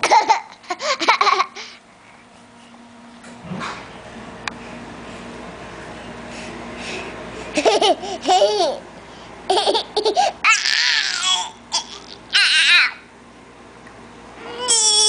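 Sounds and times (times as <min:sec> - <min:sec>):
baby laughing and squealing: 0:09.5 - 0:13.0.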